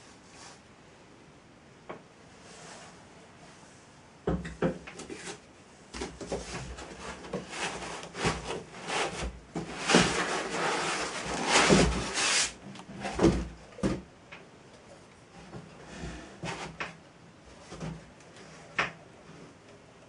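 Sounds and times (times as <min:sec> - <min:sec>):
objects scraping: 0:06.0 - 0:13.4.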